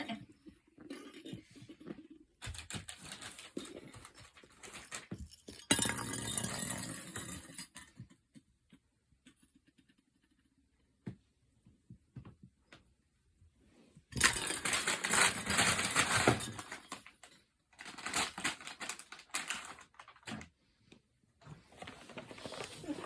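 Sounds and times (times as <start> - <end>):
plastic pieces clicking and rattling: 14.2 - 20.4.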